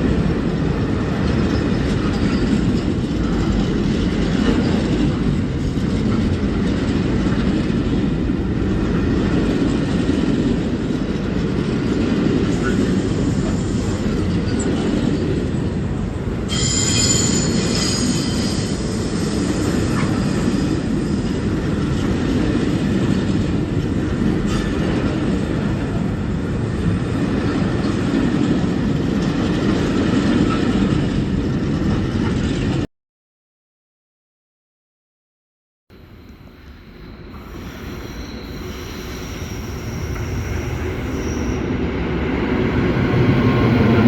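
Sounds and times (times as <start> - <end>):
train rumbling on rails: 0.0 - 32.9, 35.9 - 44.0
high wheel squeal: 16.5 - 20.8, 36.0 - 44.0.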